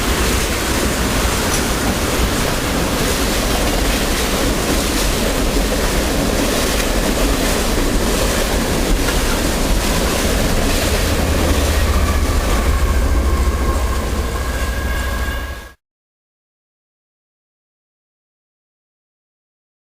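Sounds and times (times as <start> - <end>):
freight train wheels rumbling: 0.0 - 15.8.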